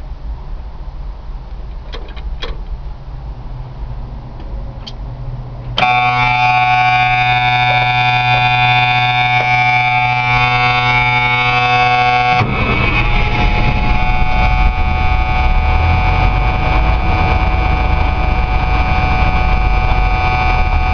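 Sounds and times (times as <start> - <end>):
diesel engine running roughly: 5.3 - 20.9
starter motor whining: 5.7 - 20.9.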